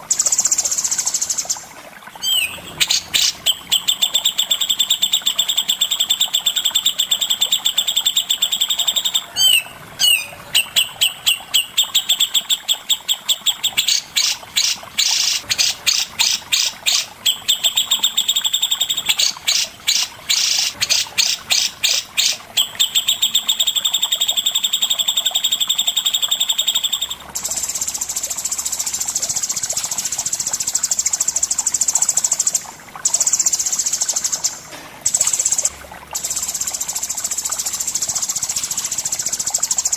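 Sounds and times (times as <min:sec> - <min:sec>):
songbird trilling: 0:02.2 - 0:12.2.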